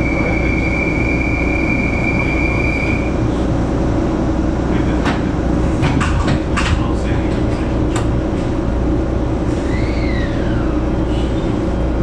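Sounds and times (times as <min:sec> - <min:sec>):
train motors and wheels rumbling: 0:00.0 - 0:12.0
high wheel squeal: 0:09.5 - 0:11.6.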